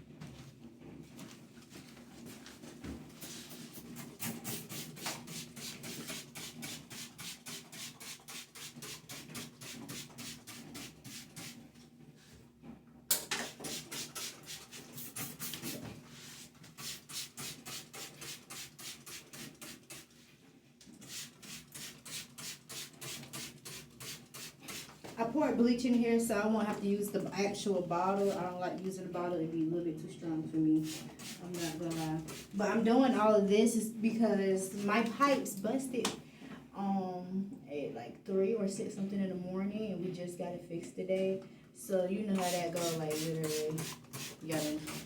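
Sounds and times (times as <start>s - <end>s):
rhythmic brushing strokes: 3.2s - 11.8s, 13.5s - 25.4s, 27.7s - 28.6s, 30.8s - 33.4s, 34.6s - 35.4s, 42.2s - 45.0s.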